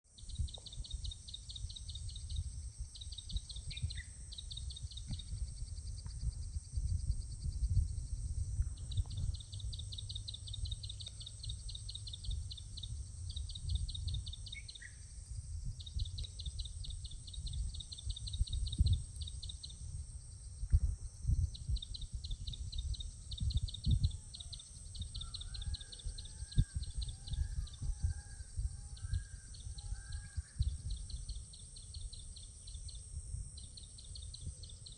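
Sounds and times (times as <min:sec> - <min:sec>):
uneven low rumble: 0:00.2 - 0:32.2.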